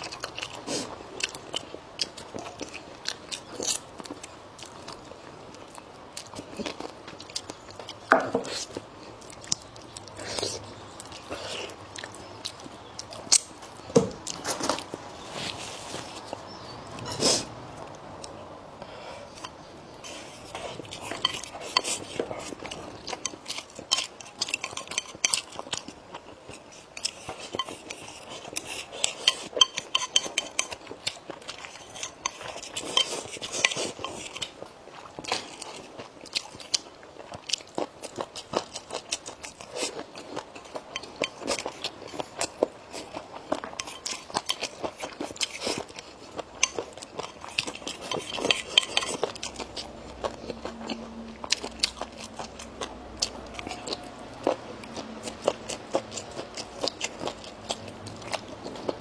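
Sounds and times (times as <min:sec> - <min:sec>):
crunchy chewing: 0:00.0 - 0:59.0
utensils clicking on dish: 0:46.6 - 0:49.9.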